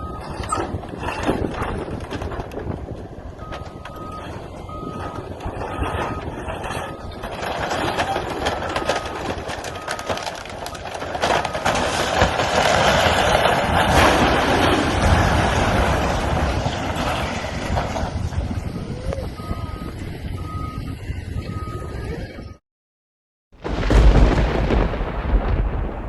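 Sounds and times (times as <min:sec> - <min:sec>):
building structure cracking and crashing: 0:00.0 - 0:18.8, 0:23.6 - 0:26.0
heavy rumble: 0:00.0 - 0:22.6, 0:23.6 - 0:26.0
backup alarm beeping: 0:03.4 - 0:07.2, 0:08.1 - 0:11.8, 0:19.3 - 0:22.6.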